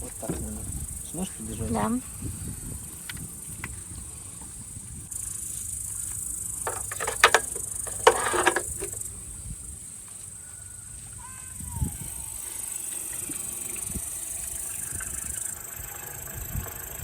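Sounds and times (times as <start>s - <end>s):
crickets chirping: 0.0s - 17.0s
loud rustling or clattering: 6.6s - 9.0s.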